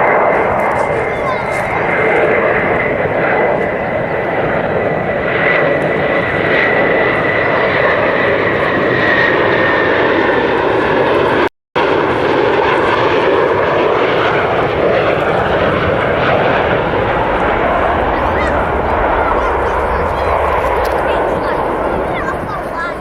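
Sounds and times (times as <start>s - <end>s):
jet engines roaring with whine: 0.0s - 23.0s.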